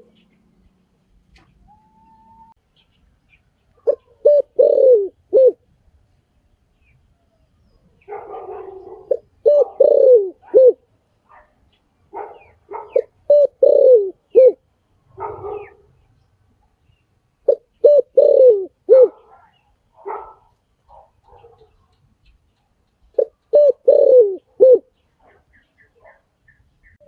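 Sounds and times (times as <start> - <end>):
dove cooing: 1.4 - 2.6, 3.8 - 5.6, 8.0 - 10.8, 12.2 - 15.9, 17.5 - 21.7, 23.2 - 26.2.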